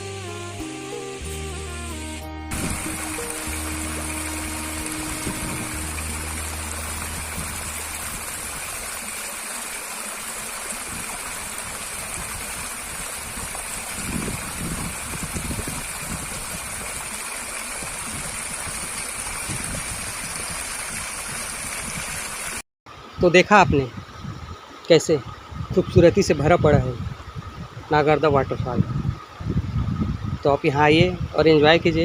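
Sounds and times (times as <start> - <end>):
low rumbles: 2.2 - 9.0
waterfall rushing: 2.5 - 22.6.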